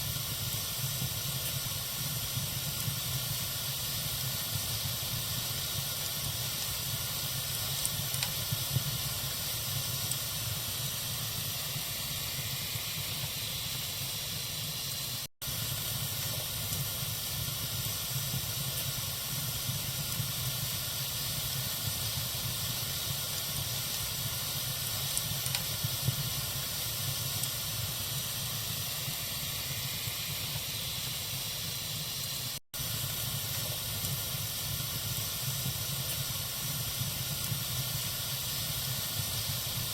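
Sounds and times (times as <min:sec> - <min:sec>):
bonfire hissing and crackling: 0:00.0 - 0:39.9.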